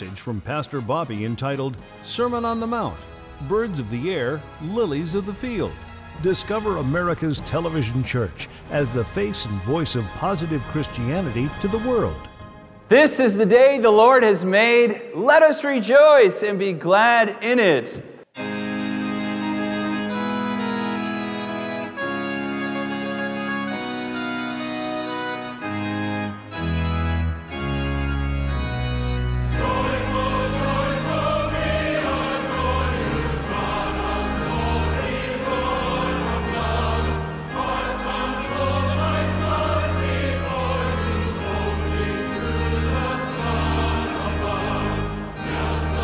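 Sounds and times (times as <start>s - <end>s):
organ playing chords: 0.0s - 16.3s, 18.2s - 46.0s
choir singing: 29.1s - 46.0s.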